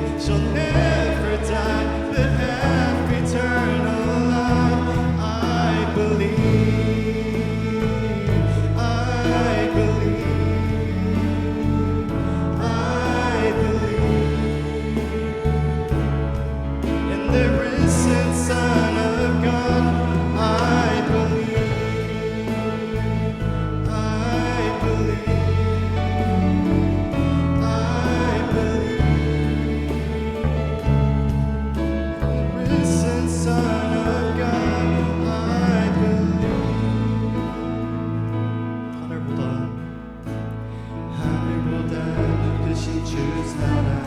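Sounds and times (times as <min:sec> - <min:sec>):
long held bass notes: 0:00.0 - 0:44.0
people singing: 0:00.0 - 0:44.0
praise band playing: 0:00.0 - 0:44.0.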